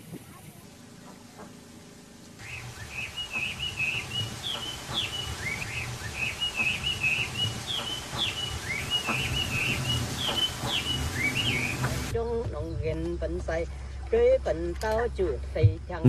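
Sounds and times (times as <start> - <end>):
birds chirping: 0.0 - 12.1.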